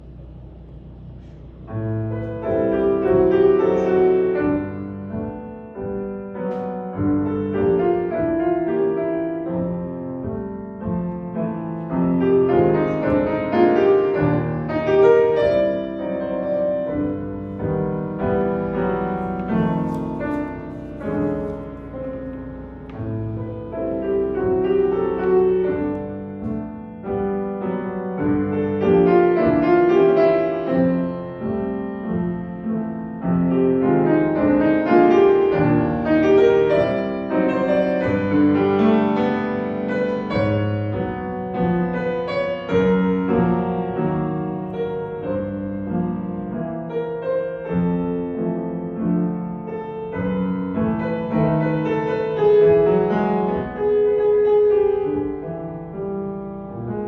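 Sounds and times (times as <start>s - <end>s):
solo piano piece: 0.0s - 57.0s.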